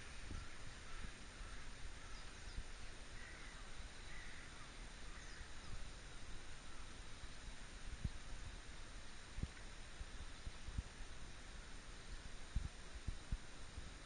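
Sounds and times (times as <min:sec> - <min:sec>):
distant bird calls: 0:00.0 - 0:08.5
steady background hiss: 0:00.0 - 0:14.0.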